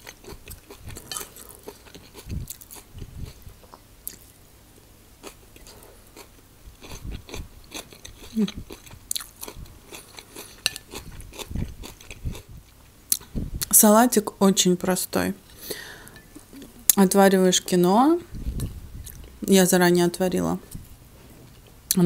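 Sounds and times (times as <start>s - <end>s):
person chewing food: 0.0s - 4.3s, 5.2s - 13.3s.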